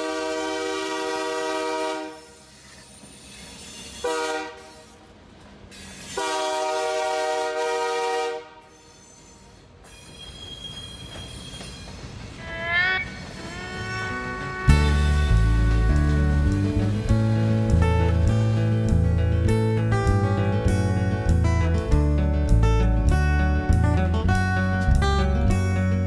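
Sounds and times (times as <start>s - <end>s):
train horn blasts: 0.0s - 2.5s, 4.0s - 5.0s, 6.1s - 8.9s, 12.4s - 17.2s
low rumble of train: 0.0s - 26.0s.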